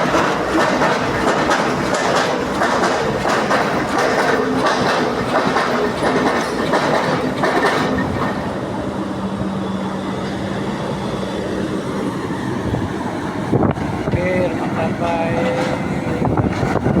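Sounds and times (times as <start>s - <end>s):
machinery clanking knocks: 0.0s - 8.4s.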